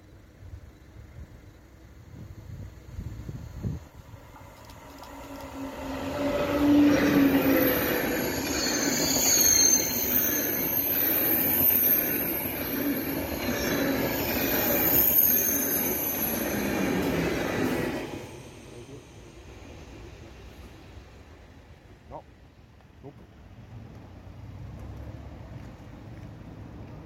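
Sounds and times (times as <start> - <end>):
high-speed train passing: 0.0 - 27.0
whining tones sliding down: 4.6 - 17.1.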